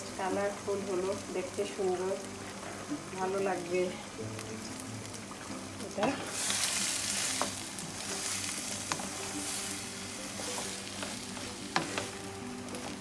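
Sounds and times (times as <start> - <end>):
food sizzling in hot oil: 0.0 - 13.0
utensil clicking against pan: 11.0 - 12.2.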